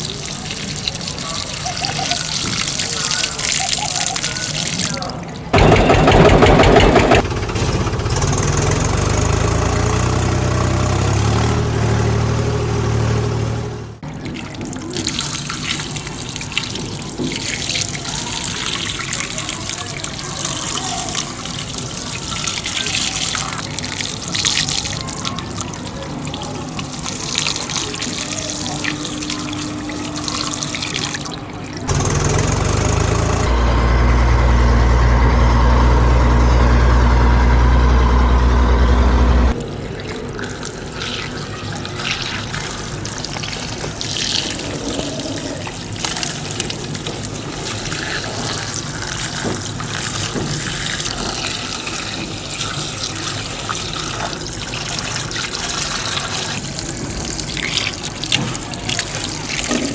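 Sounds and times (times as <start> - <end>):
water running and splashing: 0.0 - 5.6, 14.0 - 33.5, 39.5 - 59.9.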